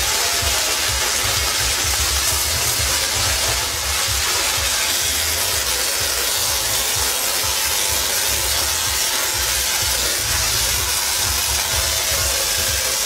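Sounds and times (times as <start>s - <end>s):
electric sparks crackling: 0.0s - 13.0s
low pulsing hum: 0.0s - 13.0s.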